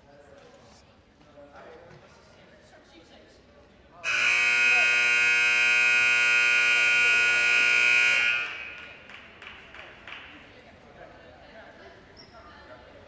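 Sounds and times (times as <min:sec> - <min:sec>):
scoreboard buzzer blast: 0:04.0 - 0:09.1.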